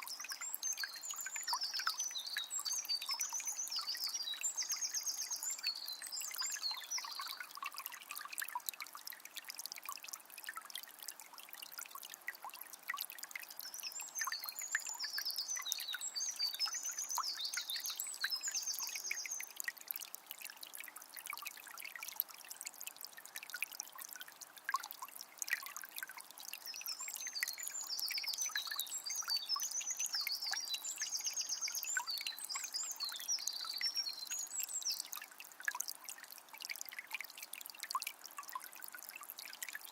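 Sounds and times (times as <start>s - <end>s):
spring water trickling and dripping: 0.0s - 39.9s.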